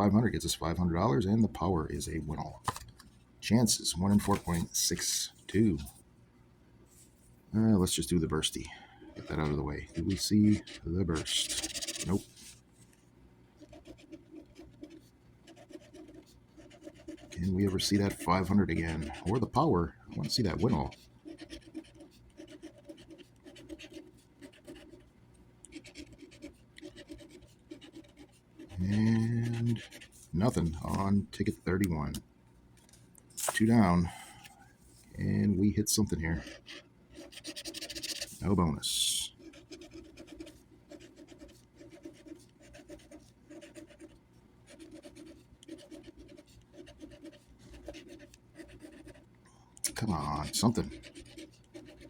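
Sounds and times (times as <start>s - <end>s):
lottery ticket being scratched: 9.2s - 12.6s, 13.6s - 25.0s, 25.8s - 31.2s, 36.3s - 49.2s, 49.9s - 52.0s.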